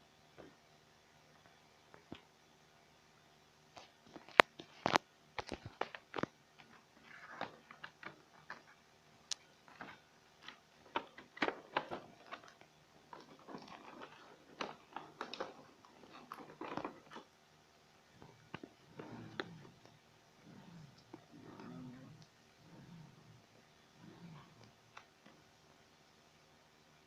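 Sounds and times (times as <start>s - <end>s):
hands handling packaging: 3.8s - 17.3s.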